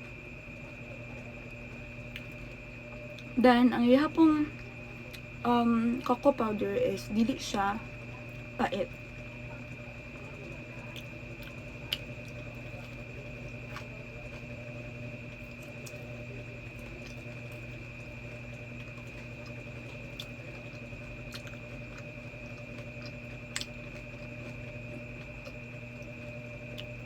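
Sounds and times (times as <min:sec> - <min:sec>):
electrical hum with high whine: 0:00.0 - 0:27.0
person chewing: 0:10.9 - 0:14.5, 0:16.7 - 0:26.1, 0:26.7 - 0:27.0.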